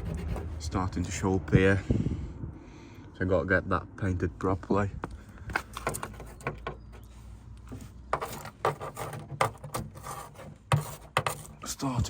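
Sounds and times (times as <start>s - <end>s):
handling clicks and knocks: 5.4s - 10.0s.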